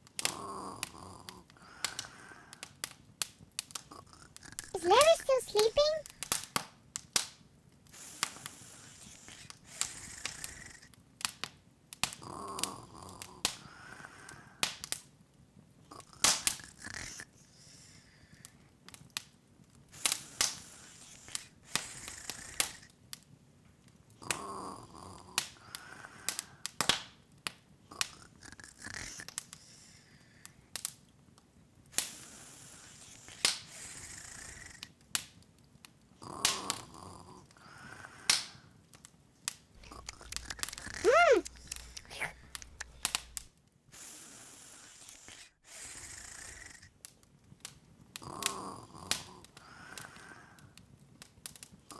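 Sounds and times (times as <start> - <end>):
wood fire crackling: 39.8 - 43.5.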